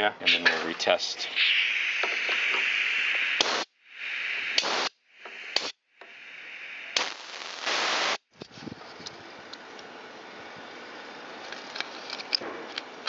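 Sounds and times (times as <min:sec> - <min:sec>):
pressurised spray hissing: 0:00.2 - 0:08.2.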